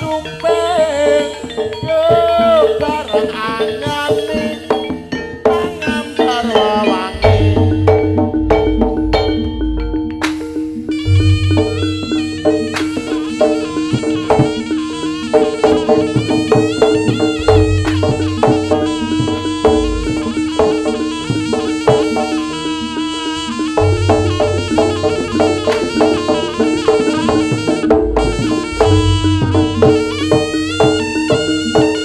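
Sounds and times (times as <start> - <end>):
drums: 0.0 - 32.0
reedy wind melody: 0.0 - 32.0
struck gongs: 5.5 - 32.0
sustained drone: 7.1 - 12.3.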